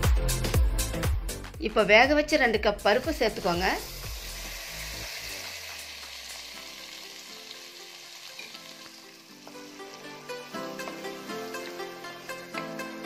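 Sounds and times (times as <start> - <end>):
lentils sizzling in ghee: 2.8 - 13.0.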